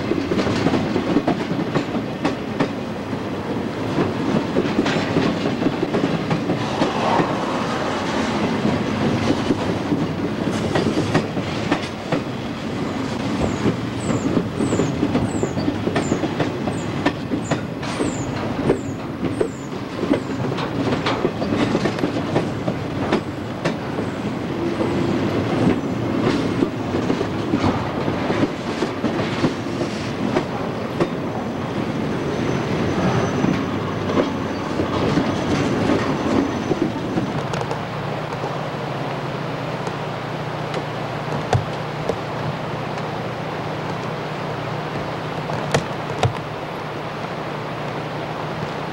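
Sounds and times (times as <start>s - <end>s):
train wheels clicking on rails: 0.0s - 48.9s
faint wheel squeal: 32.2s - 34.8s.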